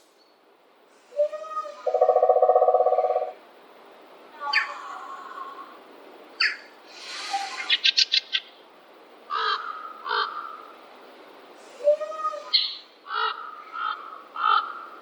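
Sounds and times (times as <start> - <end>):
birds calling: 1.2 - 3.4.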